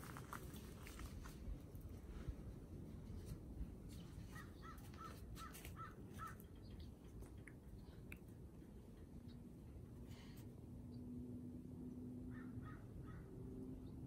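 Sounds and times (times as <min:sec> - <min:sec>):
faint low rumble: 0:00.0 - 0:12.3
bird calling: 0:04.3 - 0:06.9.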